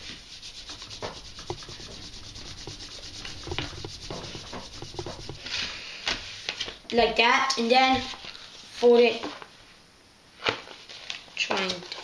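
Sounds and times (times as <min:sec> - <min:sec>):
paper being handled and folded: 0:00.0 - 0:06.8, 0:10.4 - 0:12.0.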